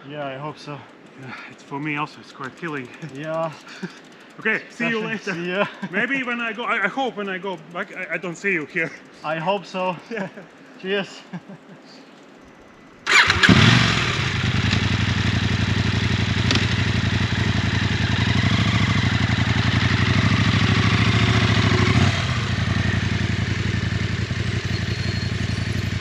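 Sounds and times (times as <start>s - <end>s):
motorcycle engine starting and idling: 0.6s - 8.3s, 13.0s - 26.0s.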